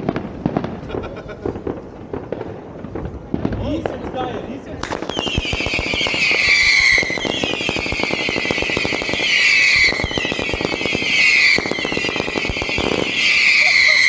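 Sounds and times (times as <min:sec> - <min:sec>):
fireworks crackling and banging: 0:00.0 - 0:14.0
firework whistles sliding down: 0:05.1 - 0:14.0.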